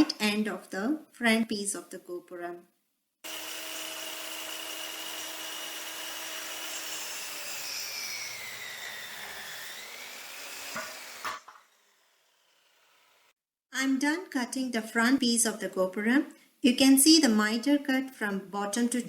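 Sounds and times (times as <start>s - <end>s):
miter saw cutting wood: 3.3s - 13.3s.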